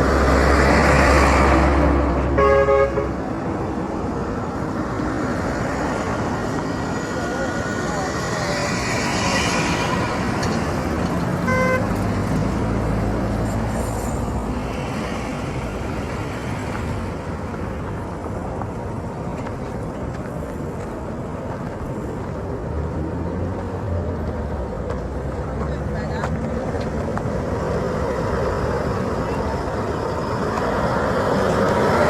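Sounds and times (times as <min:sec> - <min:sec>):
traffic engine drone: 0:00.0 - 0:32.0
vehicle horn toot: 0:02.3 - 0:03.2, 0:11.4 - 0:11.9.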